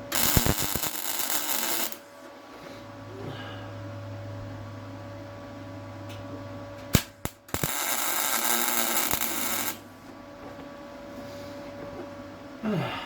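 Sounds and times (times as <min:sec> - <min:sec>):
welding arc crackle: 0:00.0 - 0:02.1, 0:06.9 - 0:09.8
welder humming: 0:00.0 - 0:02.2, 0:06.9 - 0:10.0.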